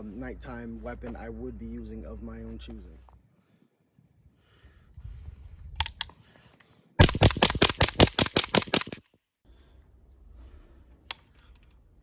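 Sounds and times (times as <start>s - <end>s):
suppressed gunshots in rapid string: 7.0s - 9.0s.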